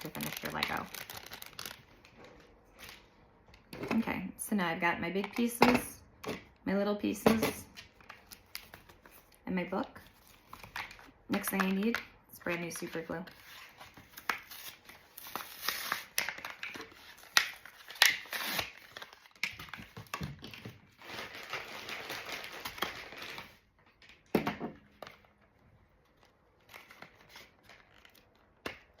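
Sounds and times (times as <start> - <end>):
packaging crinkling and tearing: 0.0 - 3.0, 13.4 - 23.7, 26.1 - 29.0.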